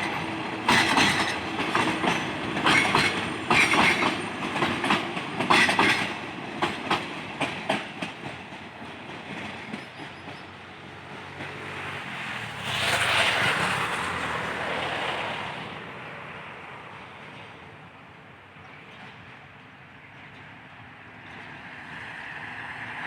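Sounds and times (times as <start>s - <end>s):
train wheels clacking: 0.0s - 11.8s
train rushing past: 0.0s - 23.0s.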